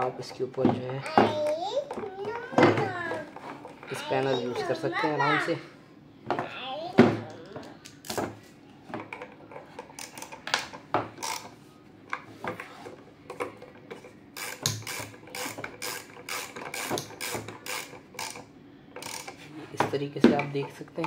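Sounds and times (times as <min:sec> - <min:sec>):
spanner clicking and scraping metal: 0:11.2 - 0:11.5, 0:14.0 - 0:19.4.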